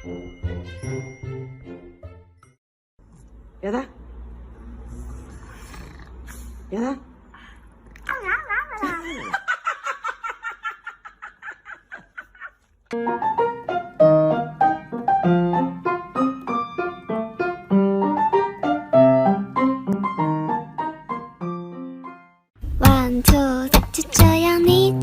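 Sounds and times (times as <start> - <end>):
piano tune with steady beat: 13.0 - 25.0.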